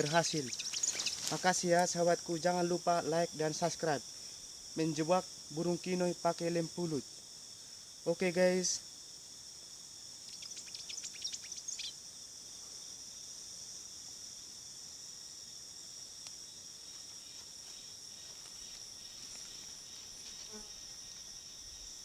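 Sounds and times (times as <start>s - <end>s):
high bird chirps: 0.0s - 1.4s, 10.3s - 11.9s
insects droning: 0.0s - 22.0s.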